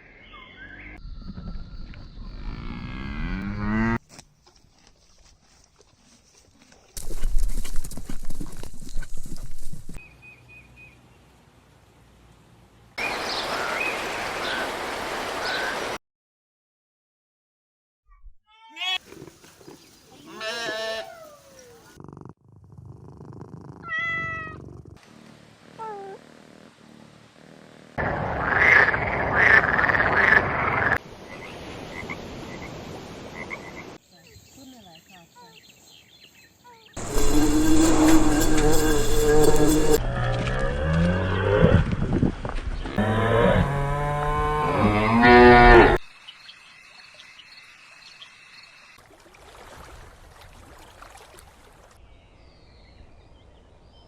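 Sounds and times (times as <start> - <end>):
steady outdoor hiss: 4.2 - 16.0, 19.0 - 22.0, 24.8 - 40.0, 46.0 - 49.0
horse hooves clip-clopping: 4.4 - 10.0
frogs croaking chorus: 28.0 - 31.0, 33.4 - 34.0.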